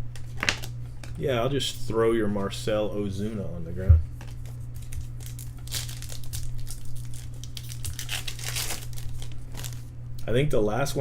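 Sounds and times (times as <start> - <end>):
low electrical hum: 0.0 - 11.0
foil wrapper crinkling and tearing: 4.2 - 9.9.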